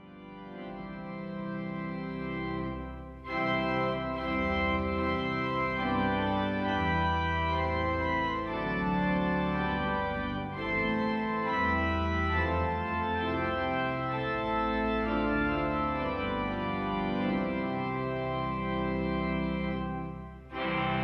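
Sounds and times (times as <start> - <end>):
pipe organ chords: 0.0 - 21.0.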